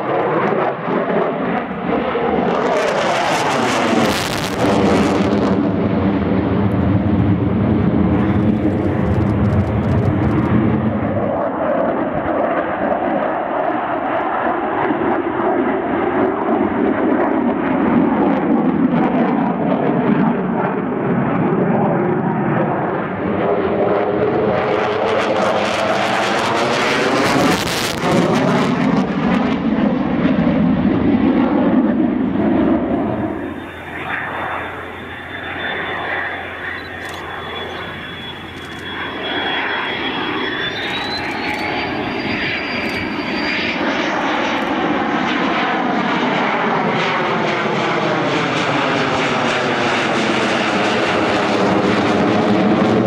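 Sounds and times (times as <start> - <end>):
military aircraft passing: 0.0 - 53.0
thin high whine: 32.8 - 44.8.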